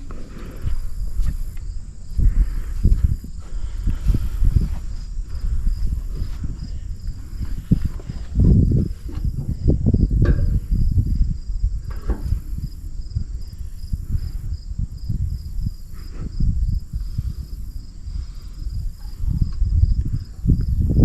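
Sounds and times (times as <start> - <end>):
crickets chirping: 0.0 - 21.0
low rumbling noise: 0.0 - 21.0.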